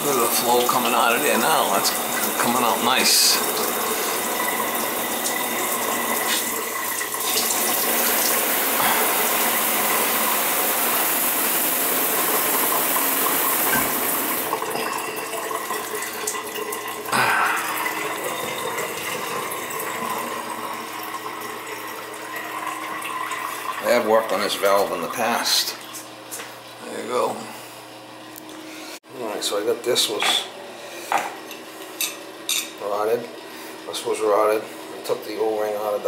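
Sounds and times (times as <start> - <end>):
shower head spraying water: 0.8 - 14.6.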